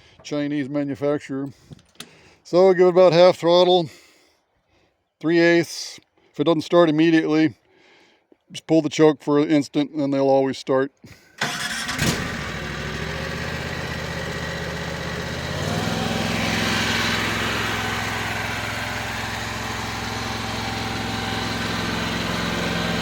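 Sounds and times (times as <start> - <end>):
engine starting and running: 11.3 - 23.0.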